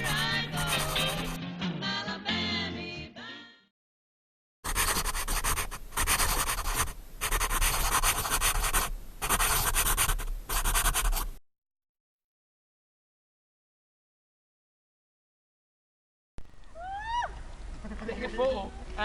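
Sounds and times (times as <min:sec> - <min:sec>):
scratchy rubbing on microphone: 0:00.0 - 0:01.4, 0:04.6 - 0:11.4.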